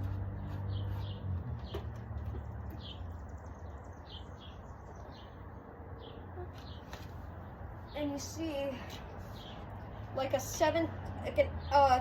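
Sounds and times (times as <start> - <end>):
bird chirping: 0.2 - 10.6.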